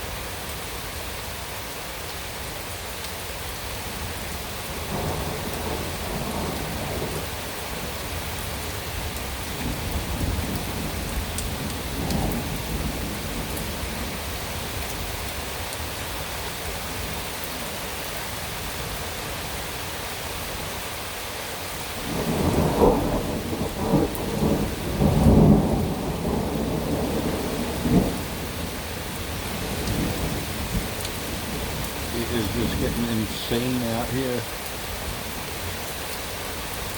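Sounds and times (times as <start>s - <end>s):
heavy rain pouring: 0.0s - 36.9s
thunder rumbling: 4.7s - 15.0s, 22.0s - 35.2s.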